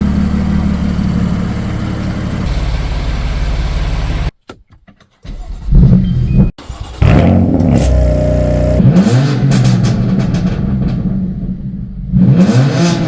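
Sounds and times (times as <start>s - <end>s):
car engine idling: 0.0s - 4.3s, 5.4s - 8.8s
engine revving loudly: 6.8s - 10.3s, 12.1s - 13.0s.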